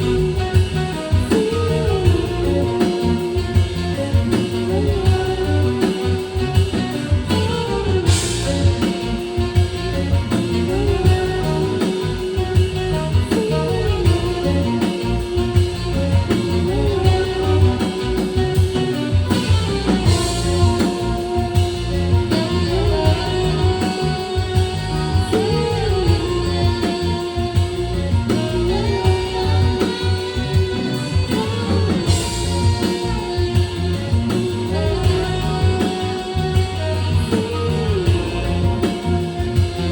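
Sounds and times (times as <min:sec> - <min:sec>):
electric guitar lead bending notes: 0:00.0 - 0:39.9
steady drum beat: 0:00.0 - 0:39.9.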